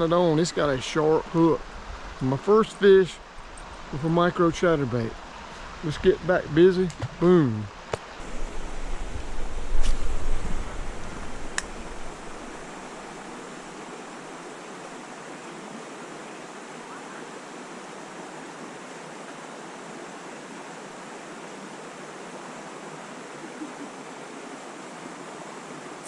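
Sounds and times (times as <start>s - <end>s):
creek water rushing: 0.0s - 26.0s
sharp click: 11.5s - 11.7s.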